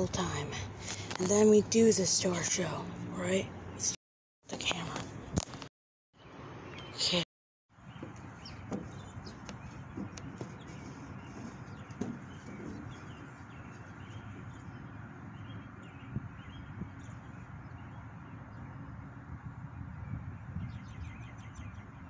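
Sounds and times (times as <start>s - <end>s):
low outdoor background rumble: 0.0s - 5.6s, 7.8s - 22.0s
light knocks: 8.0s - 13.5s.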